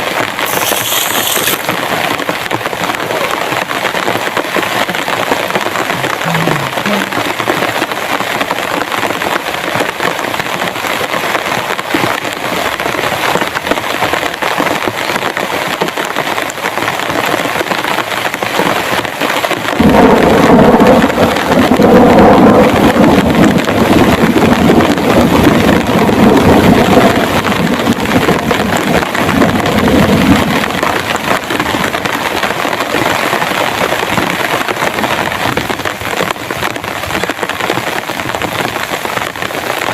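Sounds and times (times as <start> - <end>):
heavy rain pouring: 0.0 - 39.9
thunder rumbling: 5.0 - 7.8, 19.6 - 37.1.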